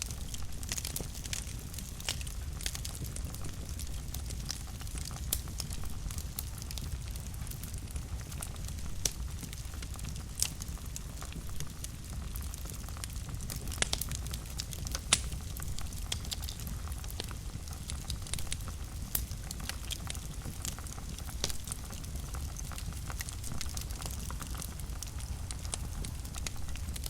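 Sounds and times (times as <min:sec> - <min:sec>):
fire crackling and popping: 0:00.0 - 0:27.0
low rumble of flames: 0:00.0 - 0:27.0.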